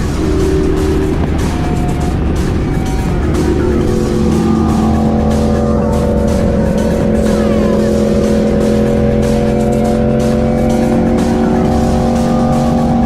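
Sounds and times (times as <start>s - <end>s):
motorcycle engine at high revs: 0.0s - 13.0s
wind rush: 0.0s - 13.0s.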